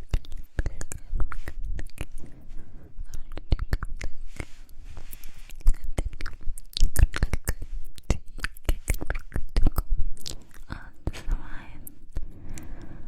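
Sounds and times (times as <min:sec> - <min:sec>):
wet mouth clicks and pops: 0:03.2 - 0:10.7.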